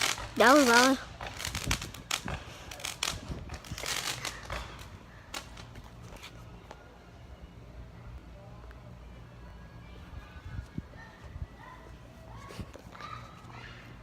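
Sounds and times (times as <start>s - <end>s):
fireworks bangs and crackles: 0.0s - 5.8s.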